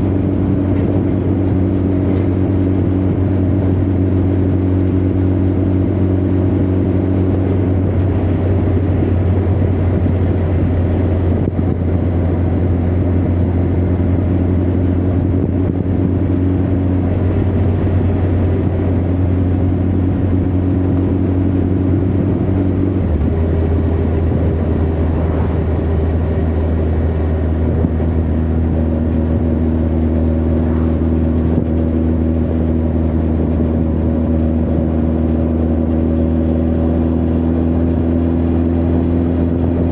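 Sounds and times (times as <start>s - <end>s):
motorcycle engine running: 0.0s - 39.9s
wind rushing: 22.0s - 33.8s.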